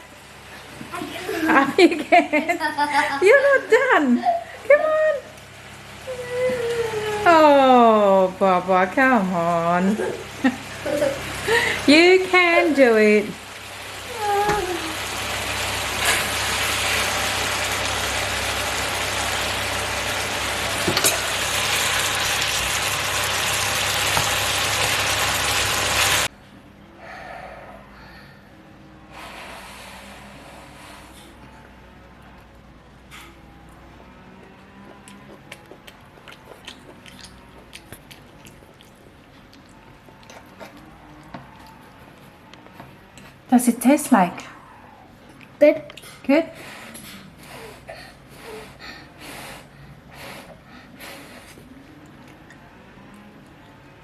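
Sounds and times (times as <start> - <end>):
stir-fry sizzling in a pan: 10.0 - 26.3
child chewing food: 33.4 - 43.5, 45.0 - 53.9.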